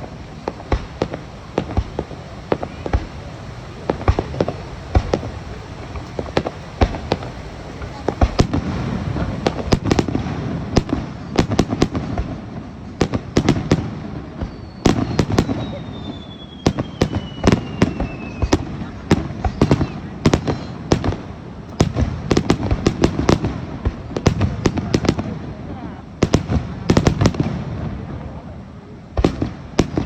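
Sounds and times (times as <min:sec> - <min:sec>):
fireworks cracks and booms: 0:00.0 - 0:30.0
falling whistling tone: 0:14.4 - 0:18.5.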